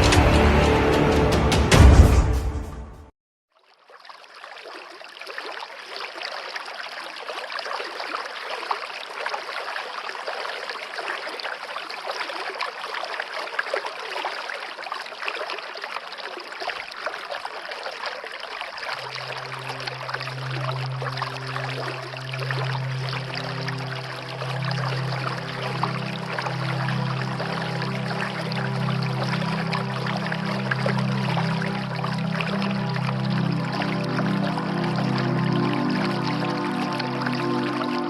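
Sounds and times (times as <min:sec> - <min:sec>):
running water: 0:03.6 - 0:38.0
low held musical tone: 0:19.0 - 0:38.0.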